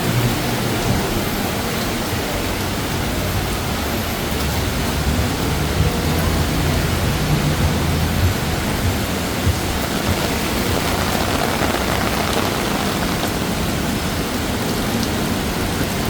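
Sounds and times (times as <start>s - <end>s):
heavy rain pouring: 0.0s - 16.0s
low hum: 9.6s - 13.9s.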